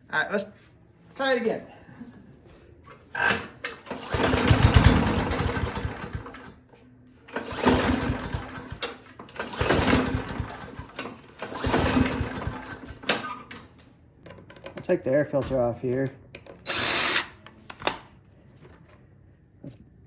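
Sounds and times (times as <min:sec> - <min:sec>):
engine cranking without starting: 0:03.2 - 0:06.5, 0:07.3 - 0:13.6
lawnmower recoil starter pulls: 0:03.2 - 0:06.5, 0:07.3 - 0:13.7.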